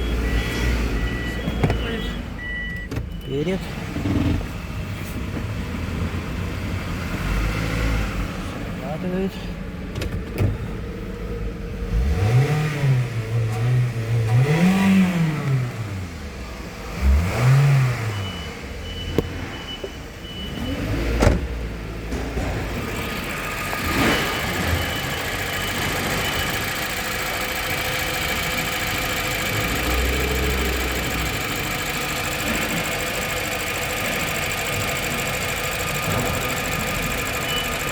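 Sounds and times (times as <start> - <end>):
car engine revving and idling: 0.0 - 37.9.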